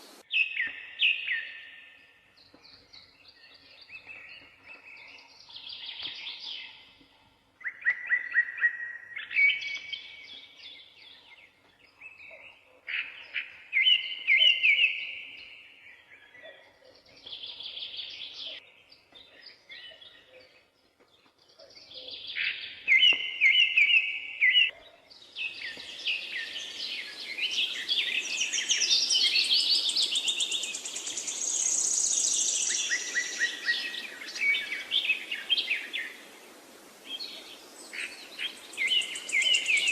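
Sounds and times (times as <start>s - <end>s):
steady hiss: 0.0s - 0.2s, 25.8s - 39.9s
songbirds singing: 0.0s - 39.9s.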